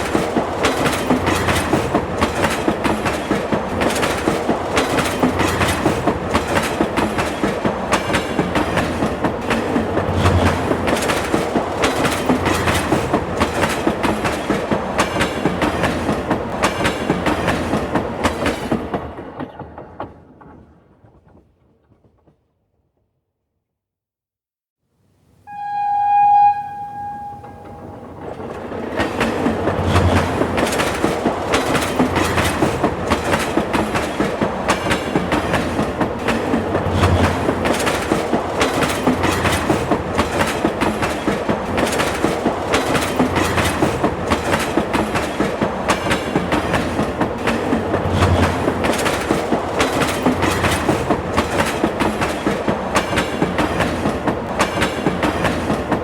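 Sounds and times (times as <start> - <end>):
low train rumble: 0.0 - 21.4, 25.5 - 56.0
train wheels clattering: 0.0 - 22.2, 27.0 - 56.0
train horn blast: 25.5 - 28.2.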